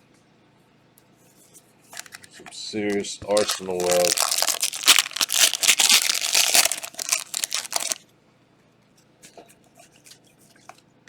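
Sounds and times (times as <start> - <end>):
card pack wrapper crinkling: 2.0 - 2.3, 2.9 - 8.0.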